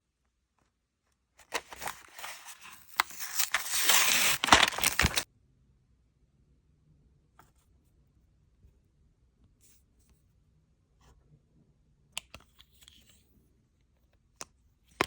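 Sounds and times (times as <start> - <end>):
plastic toy pieces crinkling: 1.5 - 5.2.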